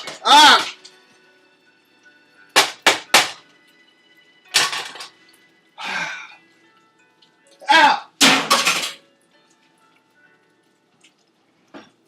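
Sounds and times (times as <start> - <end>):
sharp clatters in kitchen: 4.5 - 5.2, 8.2 - 9.0.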